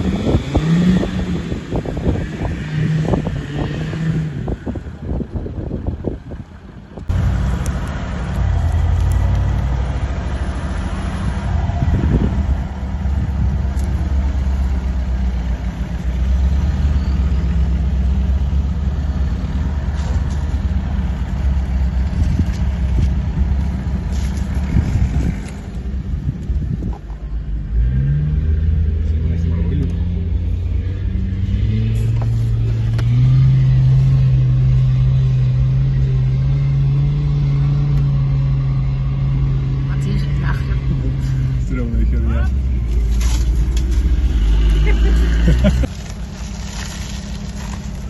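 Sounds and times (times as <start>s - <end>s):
gusty buffeting: 0.0s - 29.0s
vehicle engine running under load: 0.0s - 48.0s.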